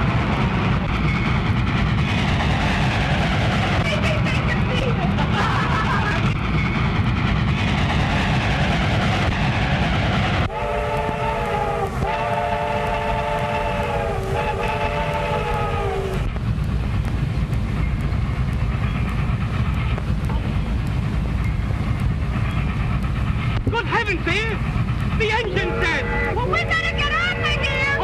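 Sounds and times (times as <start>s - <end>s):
steam train rumbling: 0.0s - 28.0s
steam whistle chord: 10.5s - 16.0s.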